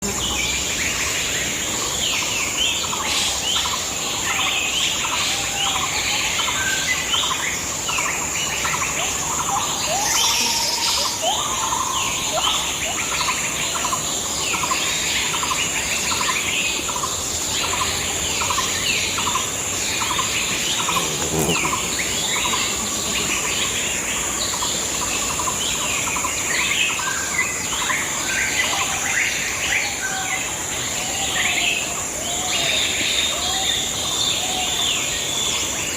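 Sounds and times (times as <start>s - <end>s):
birds chirping and calling: 15.6s - 27.2s.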